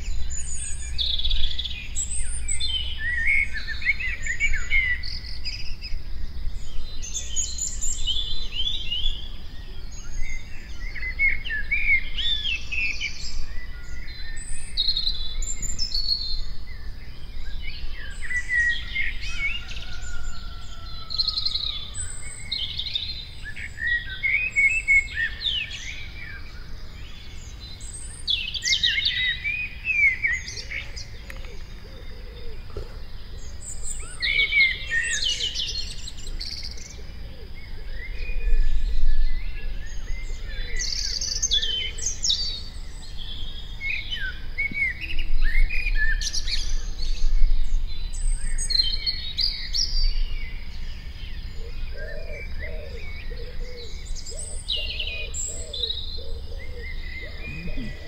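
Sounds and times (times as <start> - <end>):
songbirds singing: 0.0 - 58.0
low-pitched bird call: 54.5 - 58.0.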